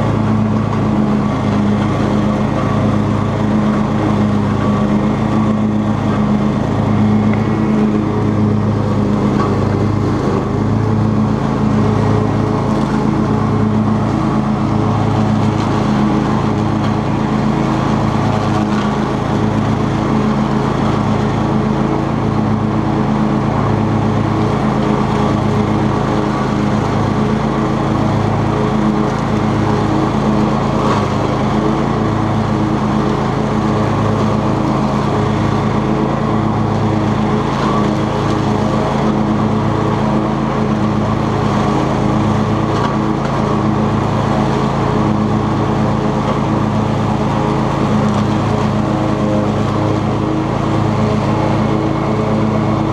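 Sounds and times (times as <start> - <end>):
lawn tractor mowing hum: 0.0 - 52.9.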